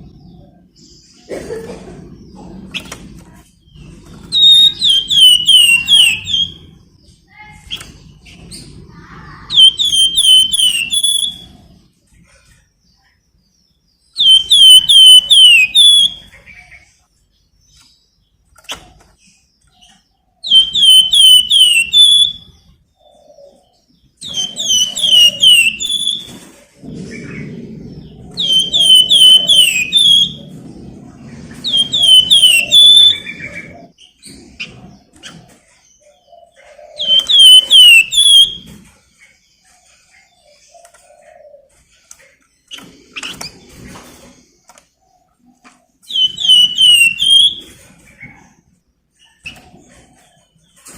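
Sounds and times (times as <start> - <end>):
songbird whistling: 4.3 - 6.6, 9.5 - 11.6, 14.2 - 16.4, 20.4 - 22.5, 24.2 - 26.3, 28.3 - 30.5, 31.6 - 33.9, 37.0 - 38.7, 46.1 - 47.7
low rumbling noise: 24.6 - 35.1.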